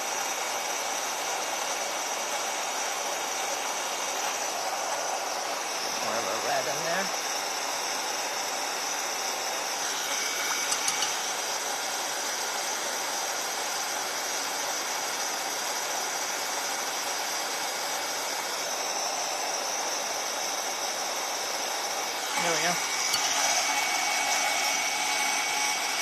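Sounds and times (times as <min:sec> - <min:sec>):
handheld dryer blowing: 0:01.2 - 0:14.2, 0:17.9 - 0:26.0.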